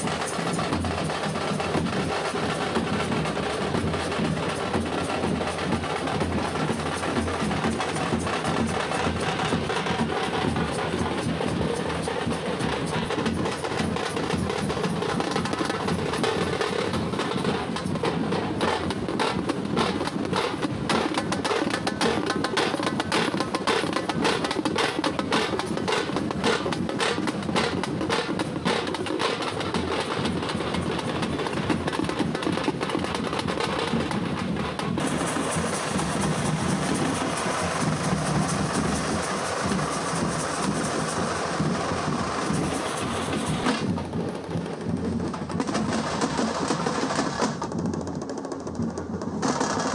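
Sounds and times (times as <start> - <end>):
frame drums beaten with sticks: 0.0 - 49.9.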